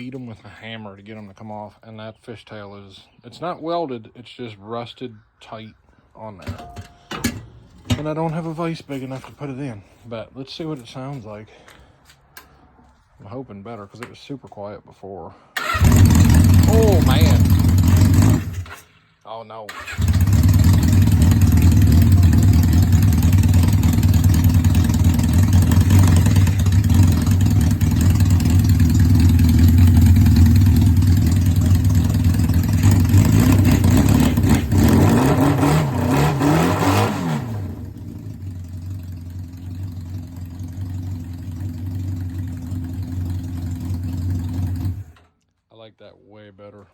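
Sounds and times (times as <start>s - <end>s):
motorcycle engine idling and revving: 15.6s - 18.8s, 19.8s - 45.3s.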